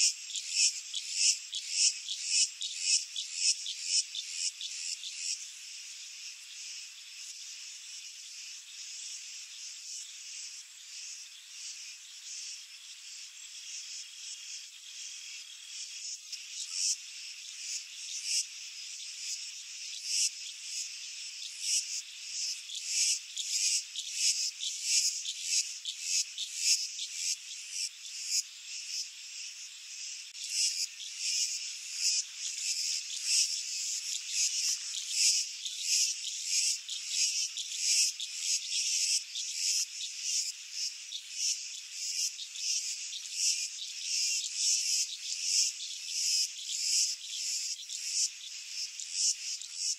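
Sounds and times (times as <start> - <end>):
chorus of high-pitched chirping: 30.4 - 49.9.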